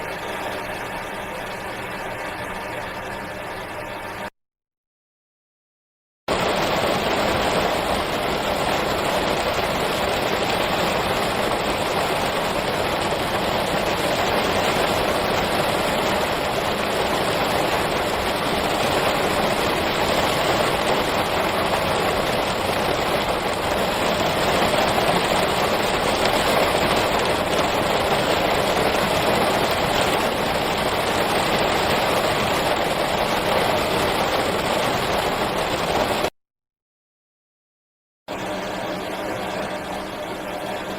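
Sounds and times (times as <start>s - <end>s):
steady rain: 6.3s - 36.3s.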